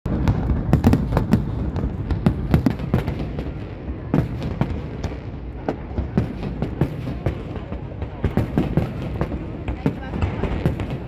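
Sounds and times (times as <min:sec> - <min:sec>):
fireworks bangs: 0:00.1 - 0:11.0.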